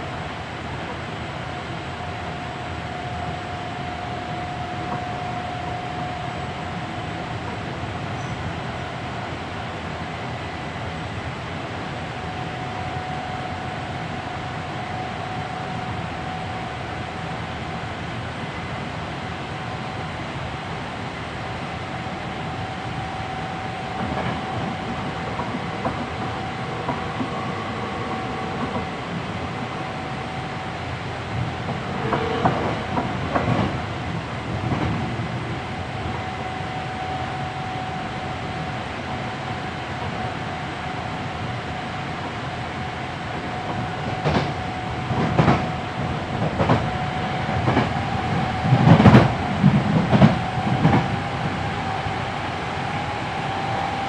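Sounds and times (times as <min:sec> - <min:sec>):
faint steady whine: 0:00.0 - 0:54.0
train wheels rumbling on rail: 0:00.0 - 0:54.0
rail-joint clicks: 0:04.8 - 0:05.6, 0:23.9 - 0:29.8, 0:31.4 - 0:33.9, 0:34.5 - 0:35.2, 0:43.6 - 0:51.7.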